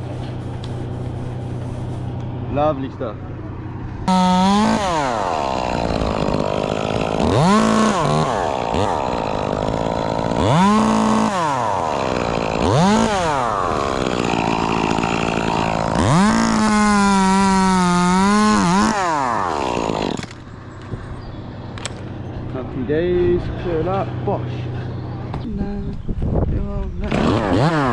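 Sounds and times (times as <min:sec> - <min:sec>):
chainsaw revving: 0:04.1 - 0:20.4, 0:27.0 - 0:27.9.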